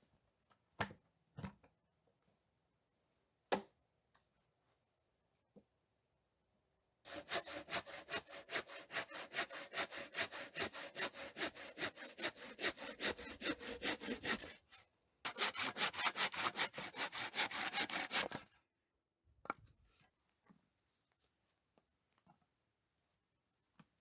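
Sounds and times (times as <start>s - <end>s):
hand saw cutting wood: 7.1s - 18.6s.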